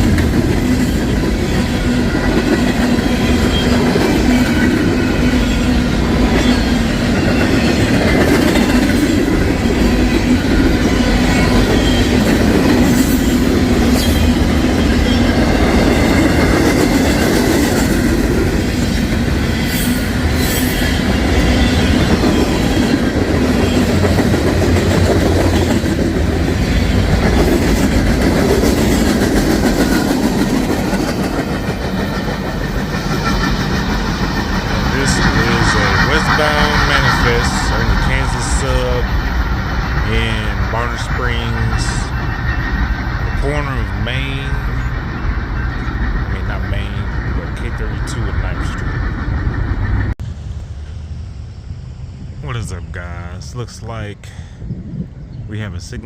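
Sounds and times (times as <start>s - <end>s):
wheels clacking over rail joints: 0.0s - 40.0s
train wheels rumbling on rail: 0.0s - 56.0s.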